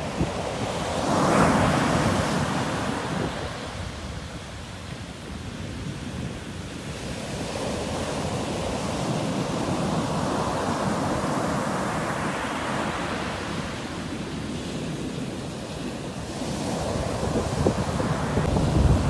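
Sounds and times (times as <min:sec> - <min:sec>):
sea waves breaking: 0:00.0 - 0:03.9.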